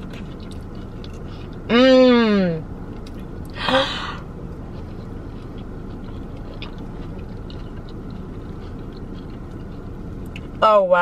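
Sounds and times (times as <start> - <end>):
person chewing crunchy food: 0.0 - 1.9, 2.6 - 10.6
low hum: 0.0 - 11.0
breathy vocal sound: 3.6 - 4.2.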